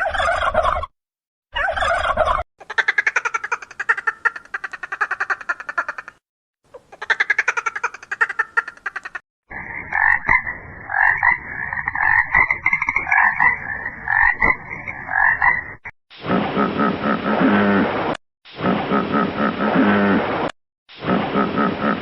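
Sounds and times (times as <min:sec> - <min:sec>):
frogs croaking: 0:09.5 - 0:15.9
rapid pulsing frog trill: 0:09.5 - 0:15.9.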